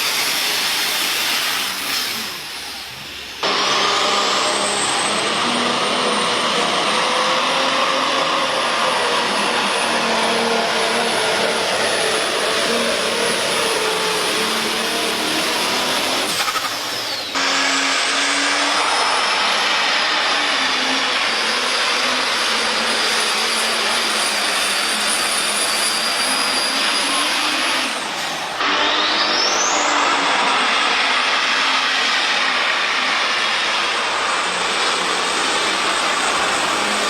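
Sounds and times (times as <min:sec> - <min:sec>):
faint high whistle: 0:18.4 - 0:30.3.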